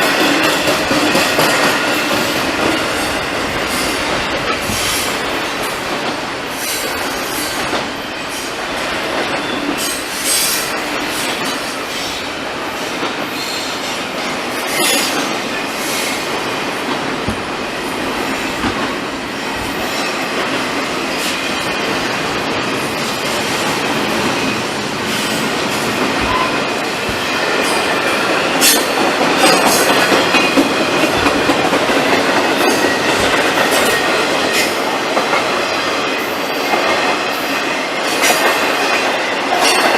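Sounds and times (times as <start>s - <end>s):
freight train wheels on rails: 0.0s - 39.9s
high wheel squeal: 26.2s - 26.9s.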